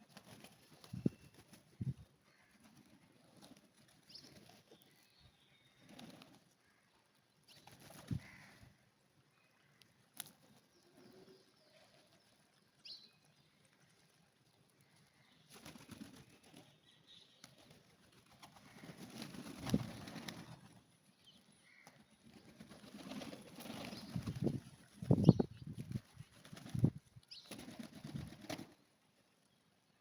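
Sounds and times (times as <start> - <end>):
pigeon wings flapping: 0.0 - 1.8, 5.9 - 6.4, 7.6 - 8.3, 15.5 - 16.6, 17.5 - 20.8, 21.9 - 28.8.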